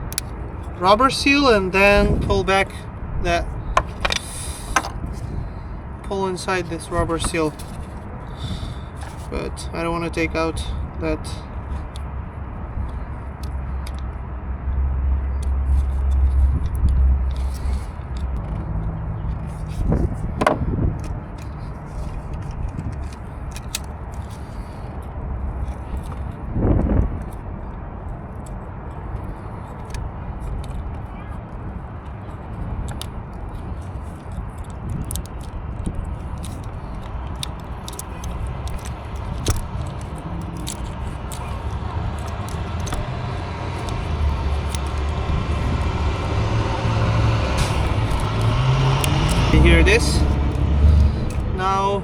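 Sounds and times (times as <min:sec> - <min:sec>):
clicks and scrapes of connector: 0:00.0 - 0:00.3, 0:03.7 - 0:05.3, 0:06.8 - 0:08.0, 0:12.8 - 0:14.2, 0:15.3 - 0:24.8, 0:25.6 - 0:26.4, 0:29.2 - 0:31.1, 0:32.8 - 0:46.3, 0:47.6 - 0:51.5
steady low rumble: 0:00.0 - 0:52.0.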